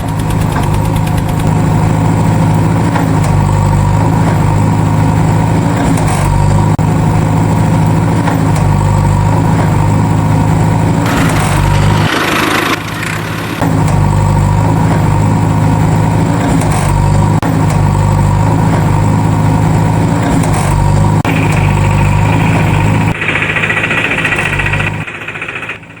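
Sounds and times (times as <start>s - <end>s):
tractor engine idling: 0.0s - 26.0s
high whine: 20.7s - 26.0s.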